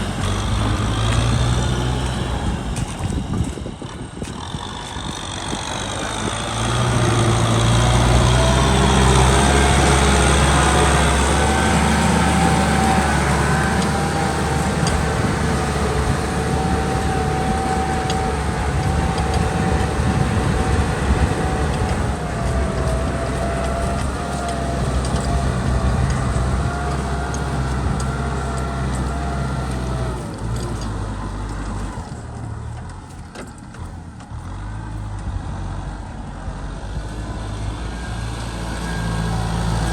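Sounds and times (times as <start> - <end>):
engine whine: 0.0 - 39.9
tractor diesel engine running: 0.0 - 39.9.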